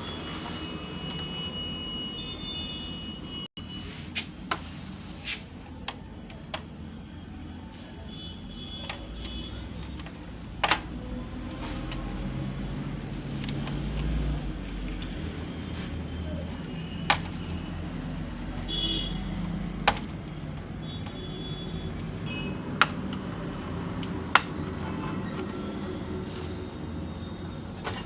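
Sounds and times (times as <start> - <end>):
parts clicking and tapping: 5.6 - 6.8, 8.7 - 12.3, 13.0 - 17.6, 18.3 - 26.0.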